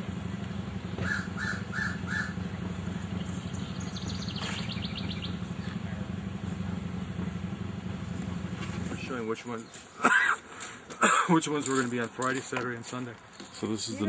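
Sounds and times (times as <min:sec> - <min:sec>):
steady low hum: 0:00.0 - 0:09.4
crow cawing: 0:01.0 - 0:02.4.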